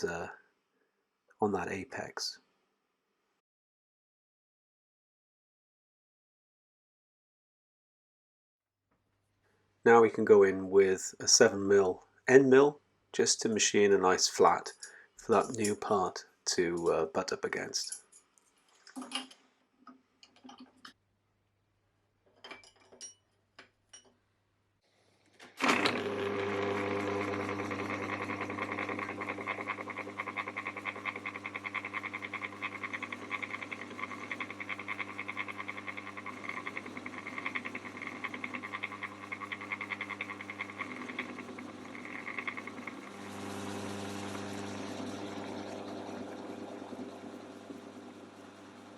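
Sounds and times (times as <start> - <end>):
milling machine motor humming: 25.6 - 48.9.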